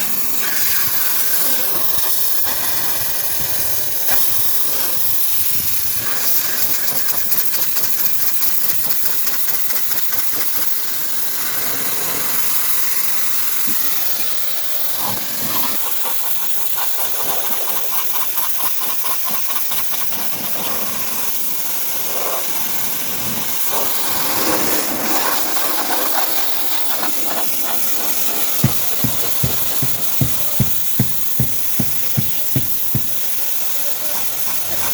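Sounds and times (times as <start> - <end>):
pressure washer spraying water: 28.0 - 33.4
low thumps: 28.6 - 33.2.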